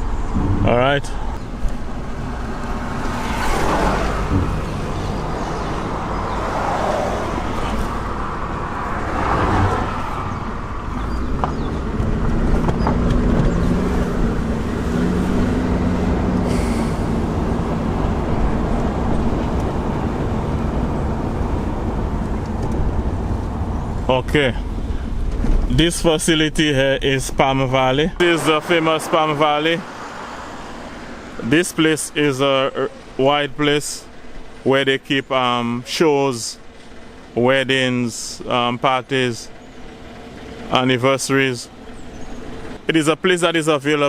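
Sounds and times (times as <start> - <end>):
car engine hum: 0.0 - 44.0
road noise: 0.0 - 44.0.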